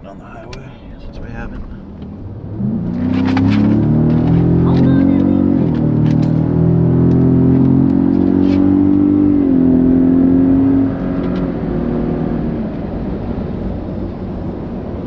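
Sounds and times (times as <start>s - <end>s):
pickup engine accelerating: 0.0s - 15.0s
road noise: 0.0s - 15.0s.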